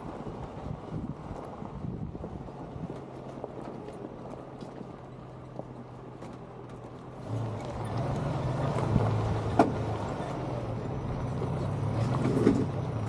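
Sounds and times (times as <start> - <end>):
truck engine under load: 0.0 - 13.0.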